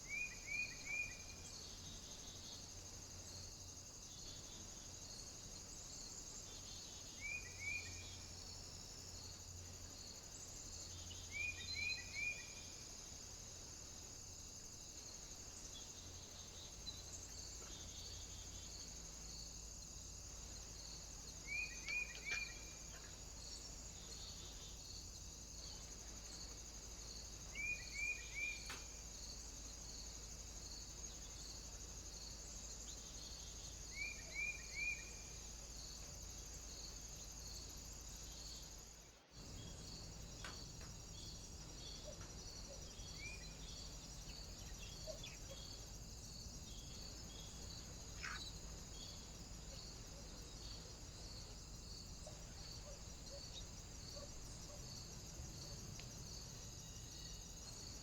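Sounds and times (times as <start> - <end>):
steady high-pitched hiss: 0.0 - 58.0
bird chirping: 21.4 - 23.2, 27.5 - 28.9, 32.9 - 35.4, 39.4 - 50.9.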